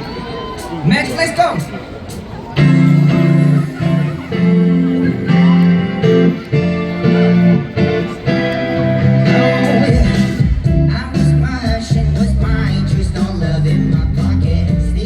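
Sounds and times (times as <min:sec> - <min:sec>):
sustained chords: 0:02.6 - 0:14.2
strummed guitar: 0:02.6 - 0:15.0.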